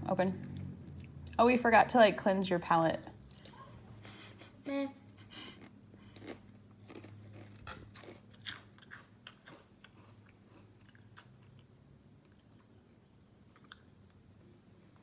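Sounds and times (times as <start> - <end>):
person chewing crunchy chip: 5.4 - 12.7.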